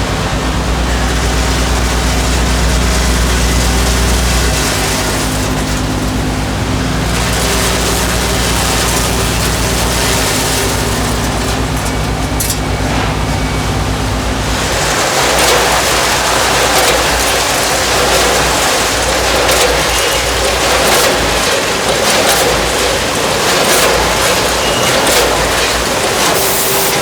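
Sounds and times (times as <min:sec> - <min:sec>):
production machinery running: 0:00.0 - 0:27.0.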